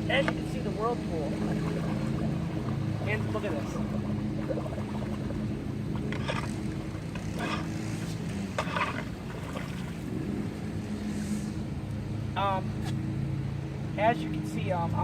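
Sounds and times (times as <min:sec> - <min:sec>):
low motor hum: 0:00.0 - 0:15.0
water gurgling down a drain: 0:01.1 - 0:07.6.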